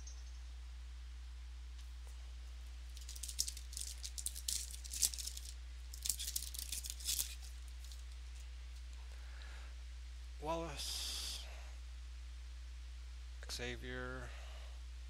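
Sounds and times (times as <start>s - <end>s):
steady electrical hum: 0.0s - 15.0s
trading cards rustling and clicking: 2.9s - 8.8s.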